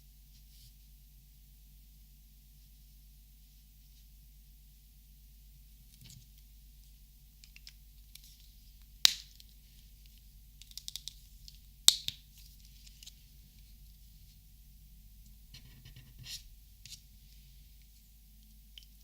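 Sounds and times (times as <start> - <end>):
plastic marker clicks: 10.6 - 12.2.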